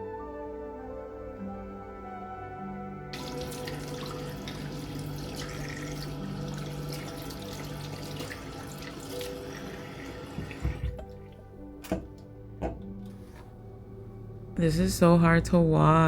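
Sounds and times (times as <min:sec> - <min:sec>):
soft slow background music: 0:00.0 - 0:16.0
water running: 0:03.1 - 0:12.3.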